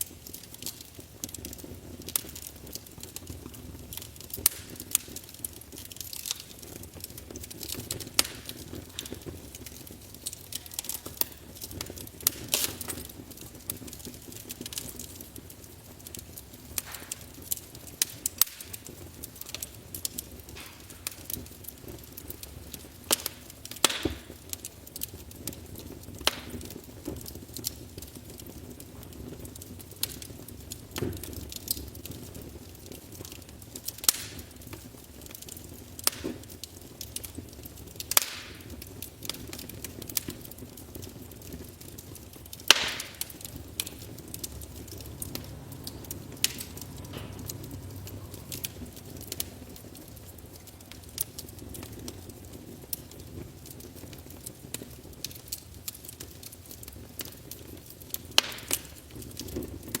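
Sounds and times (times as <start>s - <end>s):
flames hissing: 0.0s - 60.0s
wood fire snapping and popping: 0.0s - 60.0s.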